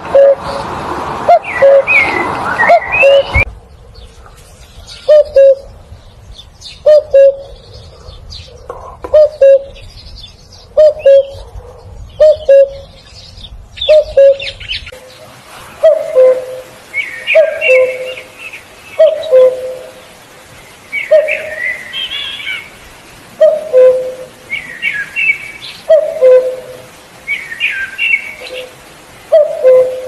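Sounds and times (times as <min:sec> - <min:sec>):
cuckoo calling: 0:00.0 - 0:00.6, 0:01.3 - 0:03.5, 0:04.9 - 0:05.7, 0:06.8 - 0:07.6, 0:09.0 - 0:09.8, 0:10.8 - 0:11.5, 0:12.2 - 0:13.0, 0:13.8 - 0:14.7, 0:15.8 - 0:18.3, 0:19.0 - 0:20.0, 0:21.0 - 0:22.6, 0:23.4 - 0:30.0
small birds chirping: 0:01.3 - 0:26.5.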